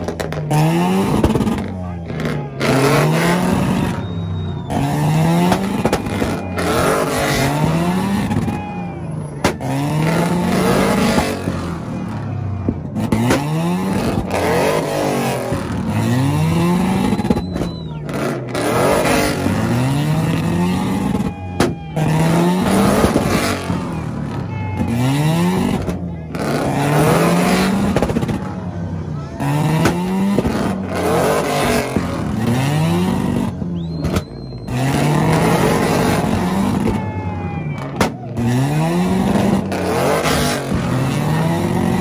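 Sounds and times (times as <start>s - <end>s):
car engine revving: 0.0s - 42.0s
exhaust pops: 5.4s - 8.6s, 27.6s - 28.6s, 33.2s - 37.0s, 37.8s - 38.5s.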